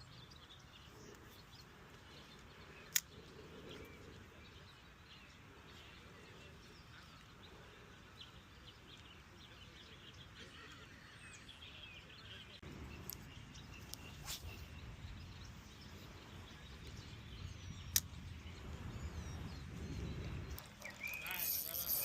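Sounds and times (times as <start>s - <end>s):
faint bird chirps: 0.0s - 22.0s
sharp clicks: 2.4s - 3.2s, 17.8s - 18.2s.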